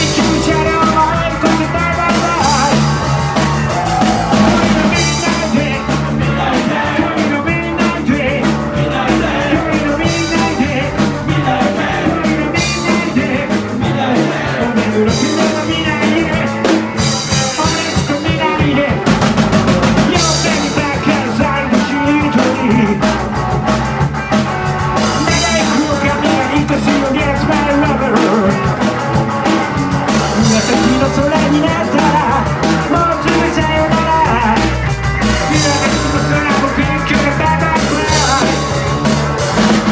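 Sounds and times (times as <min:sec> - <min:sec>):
person singing: 0:00.0 - 0:23.3, 0:25.0 - 0:39.2
drum kit: 0:00.0 - 0:39.9
live rock band playing: 0:00.0 - 0:39.9.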